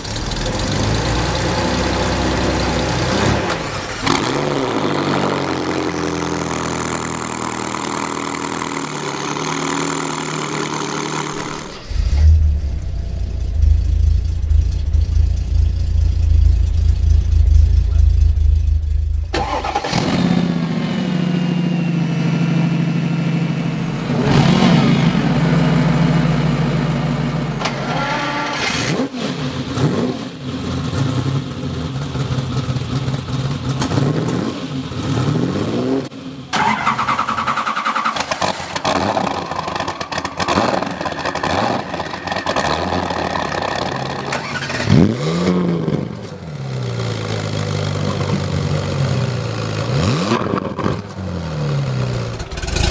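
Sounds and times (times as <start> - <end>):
car engines revving: 0.0 - 52.9.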